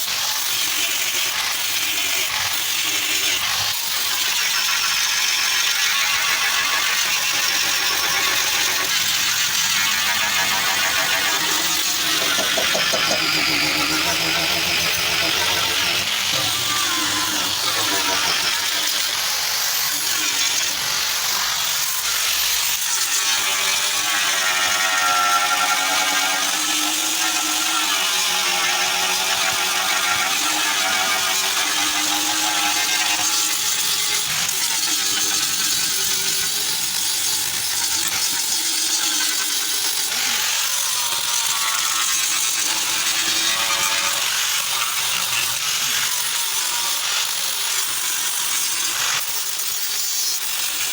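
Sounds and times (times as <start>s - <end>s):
power tool running on car bodywork: 0.1s - 25.3s.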